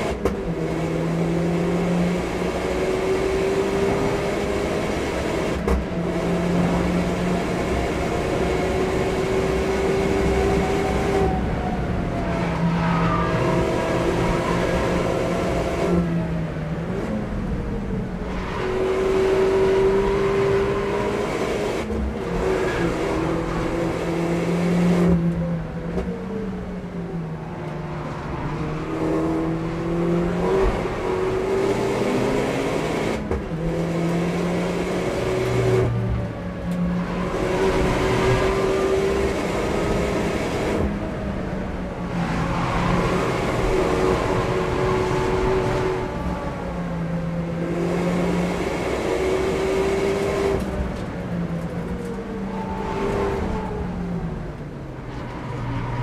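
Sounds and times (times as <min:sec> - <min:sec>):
car engine pulling hard: 0:27.6 - 0:56.0.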